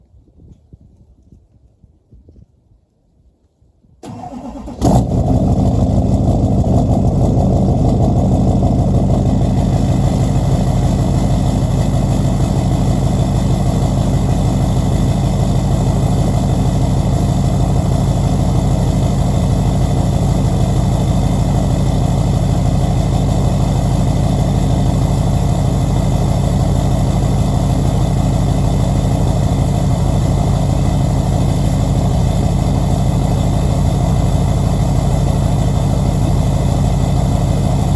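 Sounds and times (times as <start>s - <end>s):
engine cranking: 4.0s - 6.0s
diesel engine idling: 4.0s - 37.9s.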